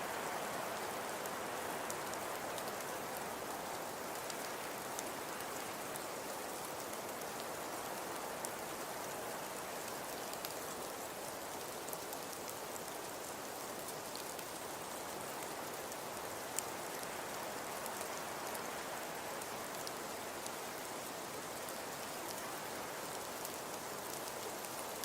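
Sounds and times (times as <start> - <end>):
wood fire crackling: 0.8 - 18.6.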